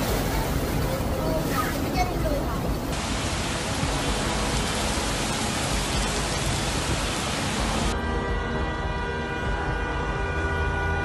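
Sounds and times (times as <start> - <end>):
heavy rain hissing: 0.0 - 8.0.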